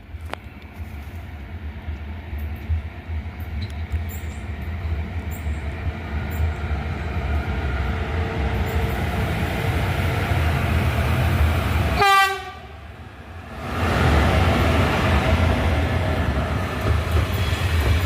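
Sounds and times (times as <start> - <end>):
train rumbling past: 0.0 - 18.0
locomotive horn blast: 11.9 - 12.8.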